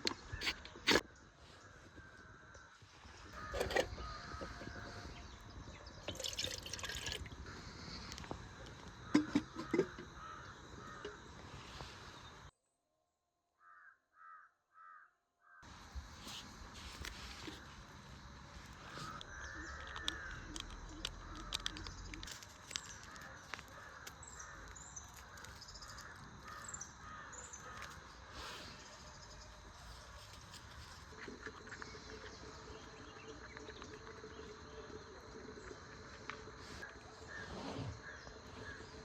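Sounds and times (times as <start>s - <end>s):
crows cawing: 0.4s - 5.5s, 7.4s - 12.0s, 13.6s - 16.4s, 18.6s - 28.5s
small birds chirping: 15.6s - 39.0s.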